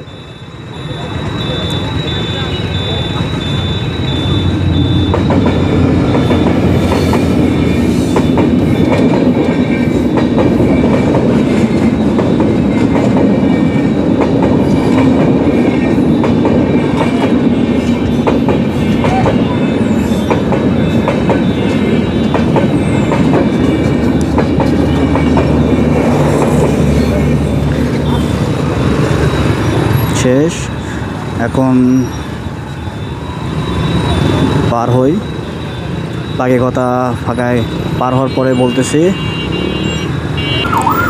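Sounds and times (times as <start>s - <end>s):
train rumbling past: 0.0s - 41.0s
wheels clacking over rail joints: 1.4s - 30.2s.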